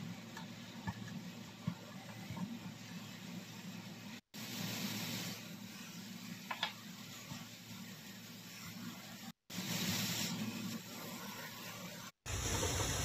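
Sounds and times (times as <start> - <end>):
food sizzling in a frying pan: 1.7 - 13.0.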